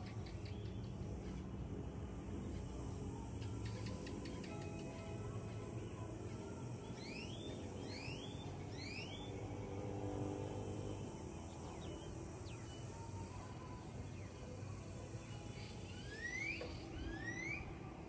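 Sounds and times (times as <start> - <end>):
low outdoor background: 0.0 - 18.0
birds whistling rising calls: 7.0 - 9.4, 15.2 - 17.9.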